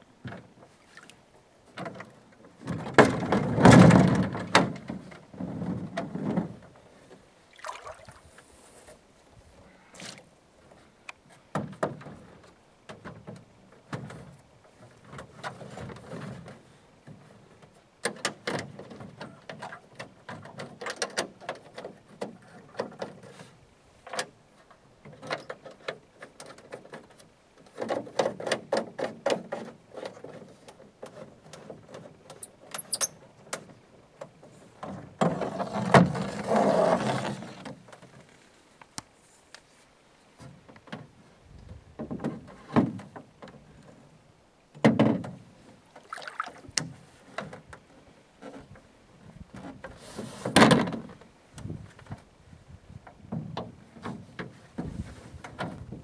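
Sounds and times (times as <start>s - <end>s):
brief high squeaks: 32.4s - 33.2s.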